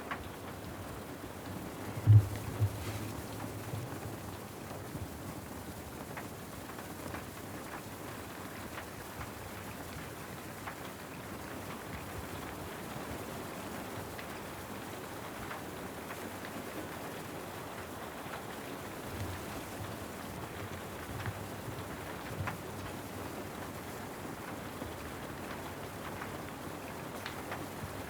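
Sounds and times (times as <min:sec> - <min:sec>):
steady rain hiss: 0:00.0 - 0:28.0
sharp rain drop taps: 0:02.0 - 0:03.9
soft low thumps: 0:02.0 - 0:03.9.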